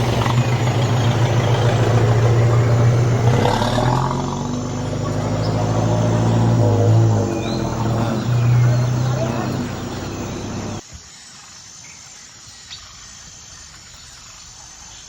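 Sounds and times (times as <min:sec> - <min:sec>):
vehicle engine humming: 0:00.0 - 0:10.8.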